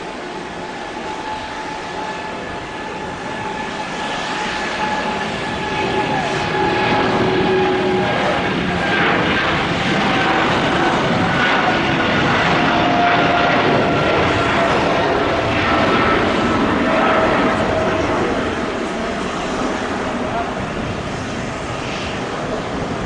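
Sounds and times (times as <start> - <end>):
jet engines whining: 0.0 - 23.0.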